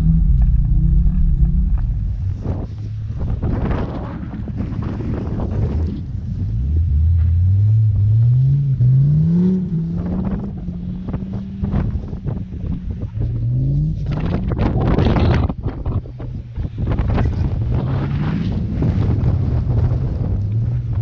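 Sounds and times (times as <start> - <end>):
wind buffeting microphone: 0.0 - 7.0, 7.6 - 21.0
car engine accelerating: 0.0 - 21.0.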